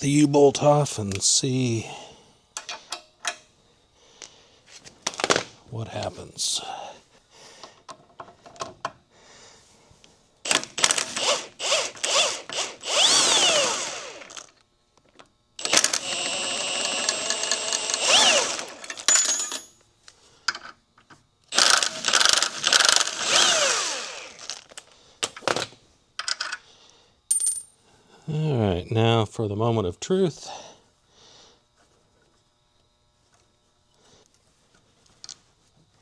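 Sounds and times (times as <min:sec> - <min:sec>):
power driver whirring: 0:10.5 - 0:14.5, 0:15.6 - 0:19.1, 0:21.5 - 0:24.8.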